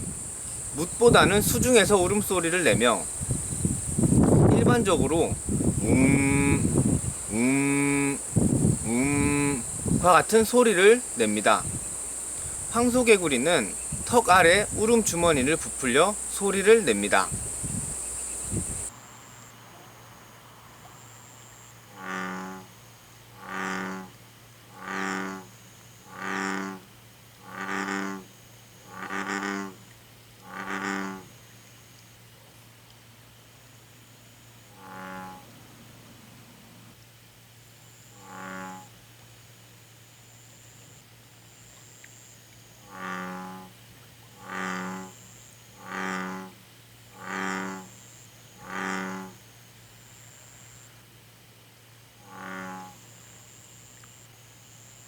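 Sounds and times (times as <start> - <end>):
bullfrog calling: 0.0 - 18.9, 21.9 - 31.4, 34.6 - 35.6, 38.1 - 39.0, 42.7 - 49.4, 52.2 - 54.0.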